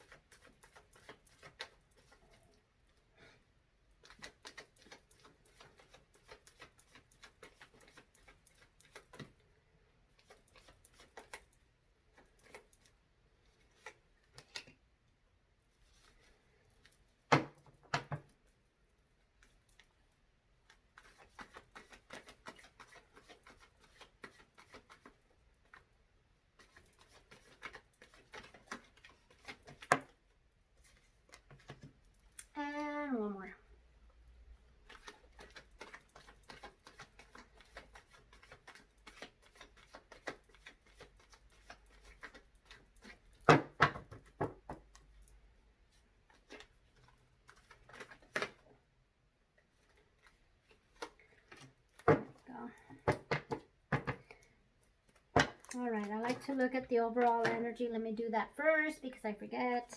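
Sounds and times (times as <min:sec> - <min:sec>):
cards being shuffled: 0:00.0 - 0:02.4, 0:04.0 - 0:09.4, 0:10.2 - 0:12.9, 0:13.5 - 0:14.8, 0:20.7 - 0:25.8, 0:26.5 - 0:30.2, 0:34.8 - 0:45.2, 0:46.3 - 0:48.7, 0:49.8 - 0:56.6.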